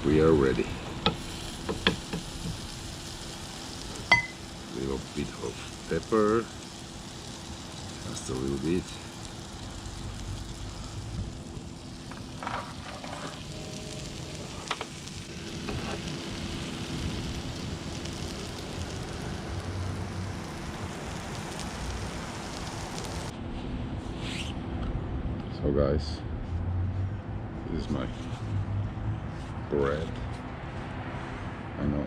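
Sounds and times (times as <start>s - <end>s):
vegetables sizzling in a pan: 0.0s - 23.3s.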